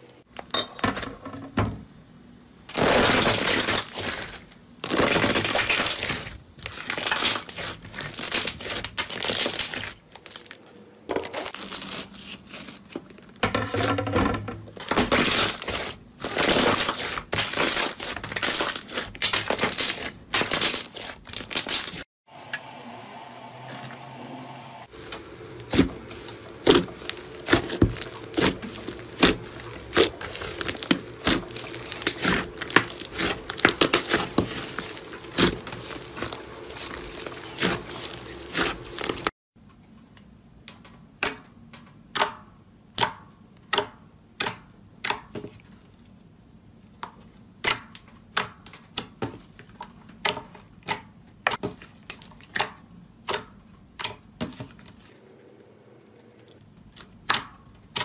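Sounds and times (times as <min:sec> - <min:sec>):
slime crackling and popping: 0:02.7 - 0:10.6, 0:15.0 - 0:22.0, 0:25.1 - 0:39.3.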